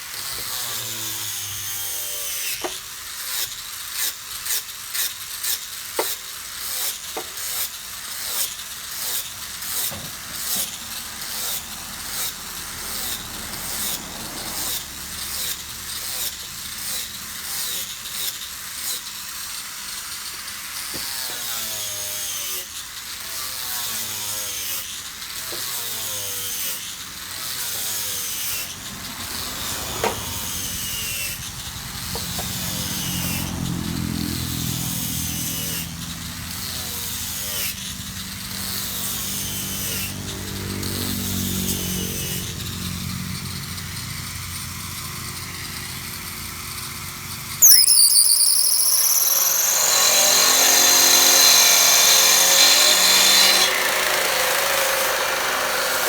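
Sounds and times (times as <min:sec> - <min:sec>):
saw rasping through wood: 0:00.0 - 0:47.0, 0:47.6 - 0:56.0.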